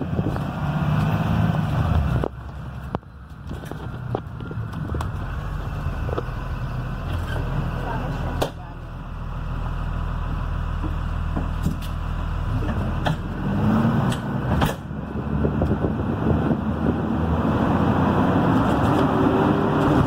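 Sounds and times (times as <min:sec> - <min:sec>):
bus diesel engine running: 0:00.0 - 0:20.0
road and tyre noise: 0:00.0 - 0:20.0
bus body knocking: 0:10.8 - 0:11.8.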